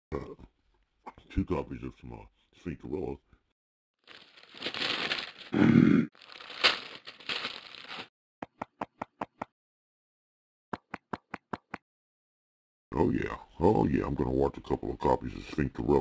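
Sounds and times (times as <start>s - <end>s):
rustling crinkling handling noise: 4.0s - 5.5s, 6.2s - 8.1s.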